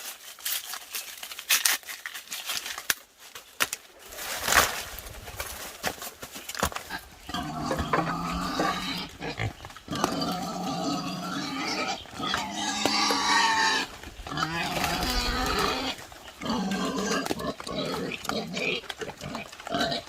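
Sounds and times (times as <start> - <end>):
wild boars grunting and squealing: 6.6 - 20.0.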